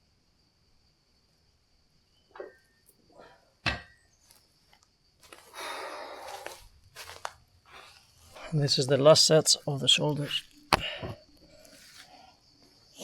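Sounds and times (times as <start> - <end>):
insects chirring: 0.0 - 13.0
heavy thud: 10.7 - 11.2.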